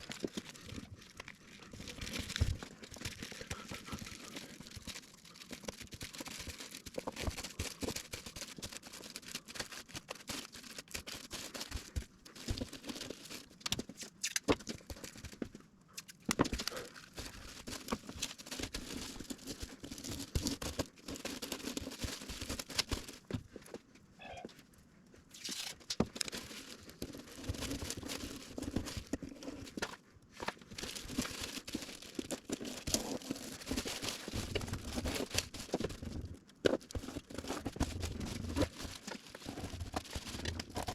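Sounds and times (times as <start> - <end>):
plastic crinkling: 0.0 - 24.3, 25.2 - 40.9.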